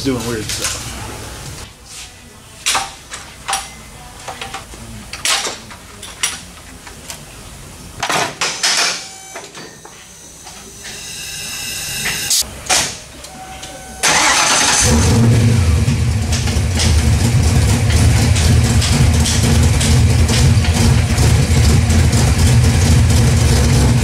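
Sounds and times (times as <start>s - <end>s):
whine: 9.0s - 12.5s
car engine running loudly: 14.3s - 24.0s.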